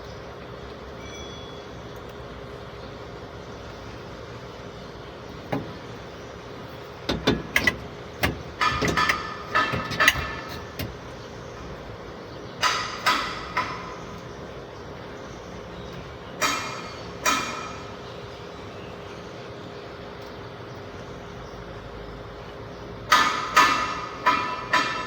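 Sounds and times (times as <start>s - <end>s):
steady background hum: 0.0s - 25.0s
metal tools clanking: 7.0s - 11.1s.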